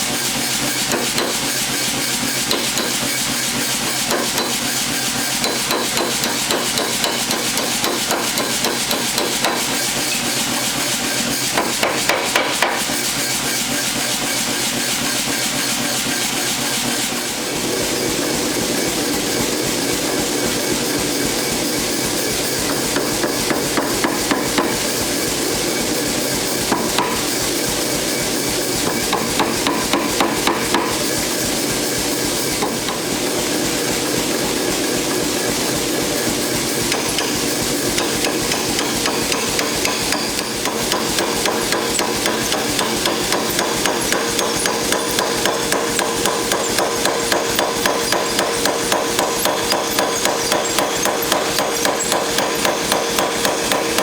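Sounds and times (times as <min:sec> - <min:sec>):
hammer striking hot steel: 0:00.8 - 0:13.0, 0:26.7 - 0:27.4, 0:28.8 - 0:31.0, 0:36.7 - 0:54.0.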